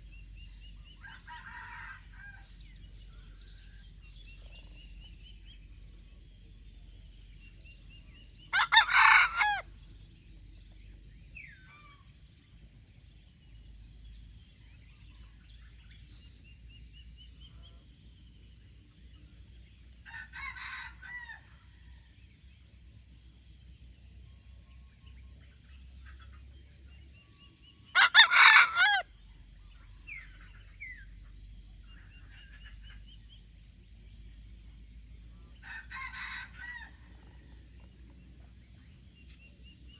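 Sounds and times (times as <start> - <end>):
rooster crowing: 1.0 - 2.5, 8.5 - 9.7, 20.1 - 21.5, 27.9 - 29.1, 35.6 - 37.4
distant roosters crowing: 1.0 - 2.8, 8.4 - 9.8, 20.0 - 21.6, 27.9 - 29.1, 35.6 - 37.5.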